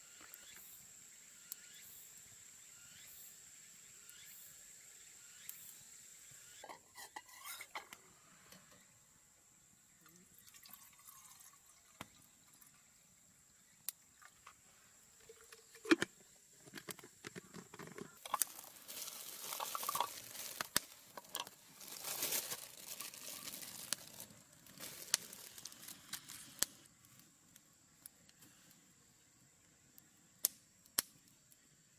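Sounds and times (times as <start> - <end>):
liquid pouring and trickling: 10.3 - 12.7, 18.2 - 24.3
camp gear clicks and knocks: 15.3 - 23.1.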